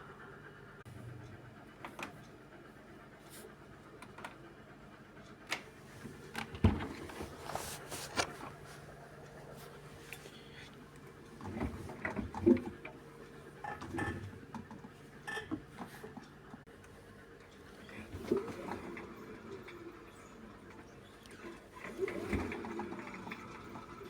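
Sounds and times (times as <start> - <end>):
washing machine faint hum: 0.0 - 24.0
washing machine clicks and thumps: 5.4 - 8.6, 11.4 - 13.0, 21.8 - 23.6.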